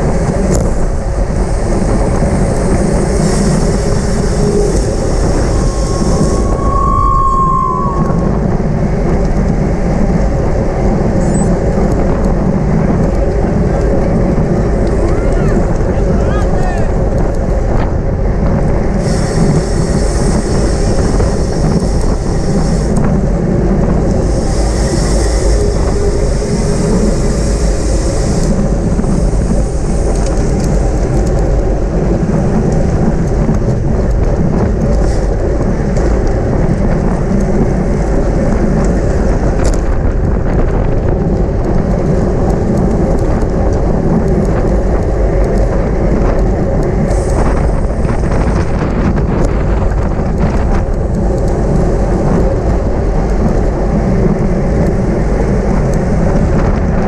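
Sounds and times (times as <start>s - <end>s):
low rumble of bicycle: 0.0s - 57.0s
wind rushing over microphone: 0.0s - 57.0s
high whirring sound: 0.5s - 9.7s.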